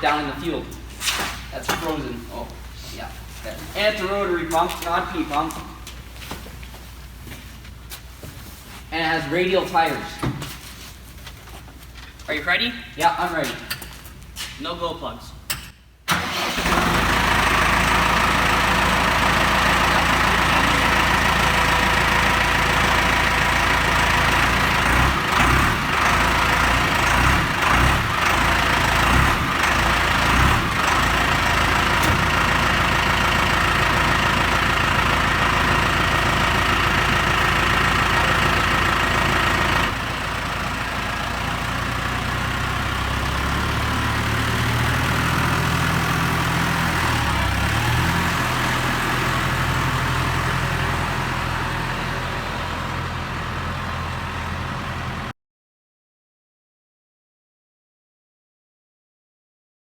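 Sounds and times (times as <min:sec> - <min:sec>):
tractor diesel engine running: 0:16.1 - 0:55.3.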